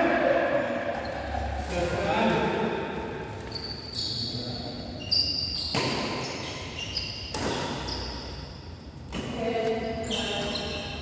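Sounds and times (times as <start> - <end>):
shoes squeaking on court floor: 3.2 - 11.0.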